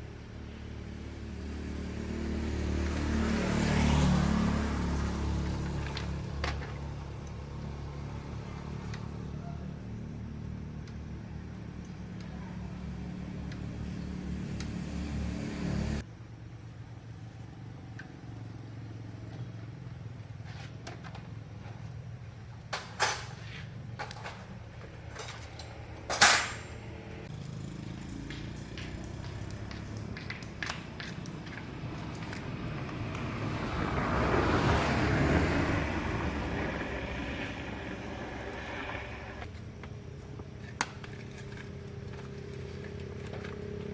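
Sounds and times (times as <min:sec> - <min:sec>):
engine running: 0:24.0 - 0:43.9.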